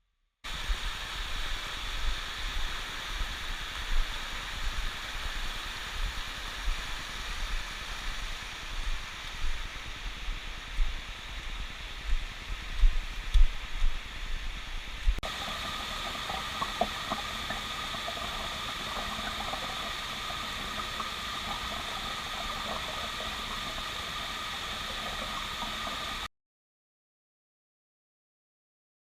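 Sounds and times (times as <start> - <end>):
rushing river water hiss: 0.5 - 26.3.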